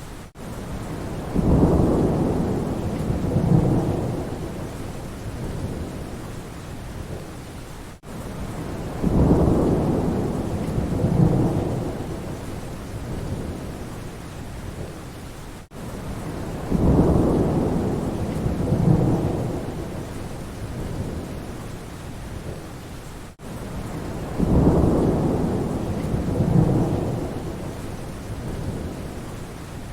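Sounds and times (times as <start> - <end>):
steady rain: 0.0 - 29.9
thunder rumbling: 0.8 - 6.2, 8.4 - 13.9, 16.1 - 21.5, 23.8 - 29.2.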